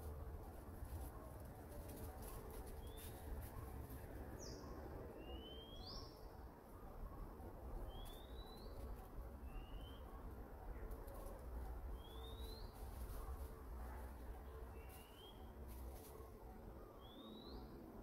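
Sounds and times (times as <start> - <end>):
birds chirping: 11.9 - 12.9.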